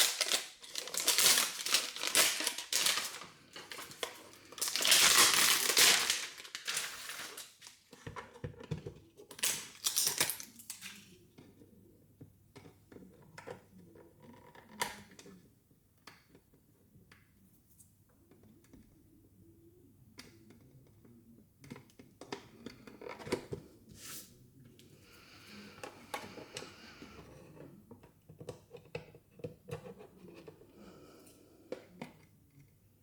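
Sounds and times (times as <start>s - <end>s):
plastic wrapping crinkling: 0.0s - 8.0s, 9.4s - 11.0s.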